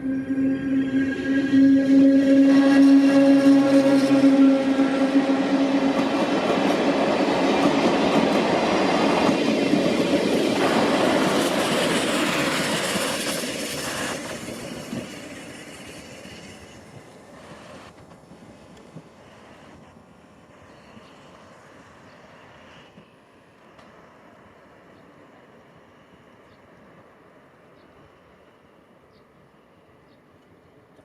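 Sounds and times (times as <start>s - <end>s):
train wheels rattling over rails: 0.9s - 19.2s.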